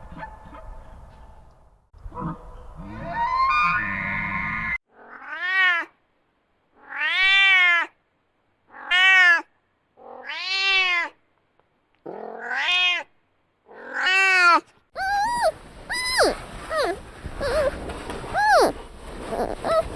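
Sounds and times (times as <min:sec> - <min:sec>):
cat meowing: 0:12.4 - 0:13.1, 0:13.9 - 0:19.9.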